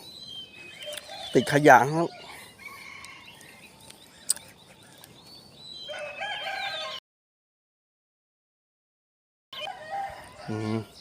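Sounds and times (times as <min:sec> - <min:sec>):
rooster crowing: 0:05.9 - 0:07.0, 0:09.6 - 0:10.9.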